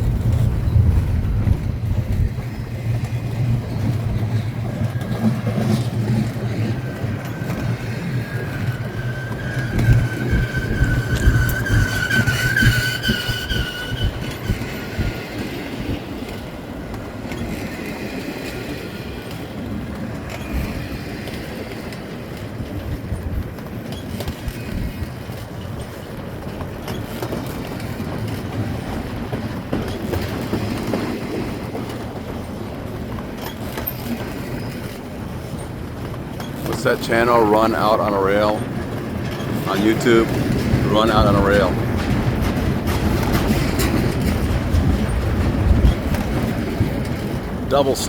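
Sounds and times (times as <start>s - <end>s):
freight train rumbling on rails: 0.0s - 48.0s
high wheel squeal: 3.7s - 15.5s.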